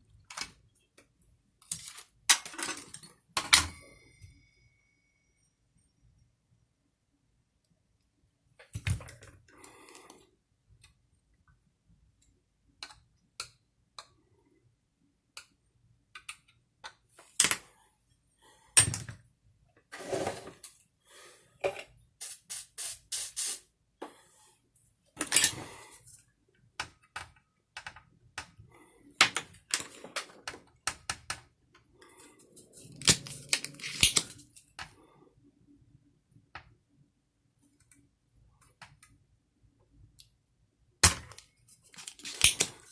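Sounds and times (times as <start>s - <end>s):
small parts and tools clicking: 32.2s - 35.0s, 41.0s - 42.9s.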